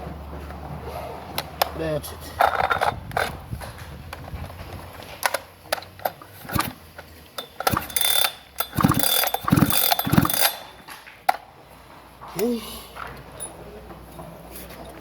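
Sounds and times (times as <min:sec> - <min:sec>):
parts scraping: 0:00.4 - 0:11.4
chainsaw parts clicking and ratcheting: 0:02.4 - 0:03.4, 0:05.2 - 0:10.9.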